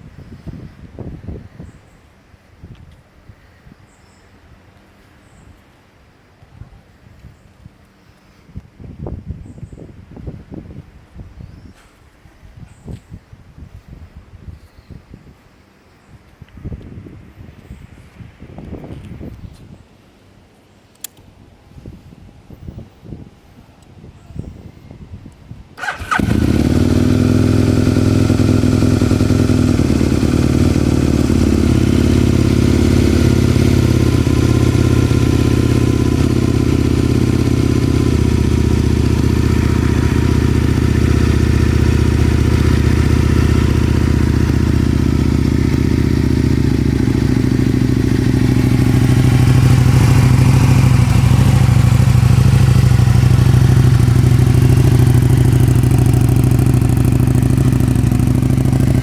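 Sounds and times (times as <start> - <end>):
motorcycle engine idling: 25.8 - 59.0.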